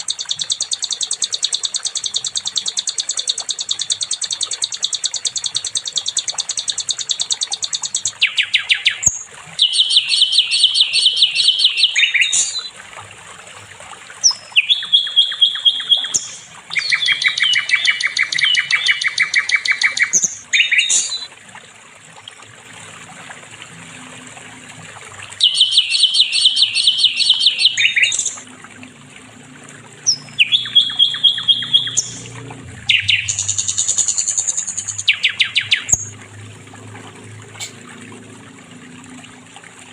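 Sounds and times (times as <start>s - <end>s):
bird singing trilled phrases: 0.0s - 12.8s, 14.2s - 21.3s, 25.4s - 28.5s, 30.0s - 36.2s.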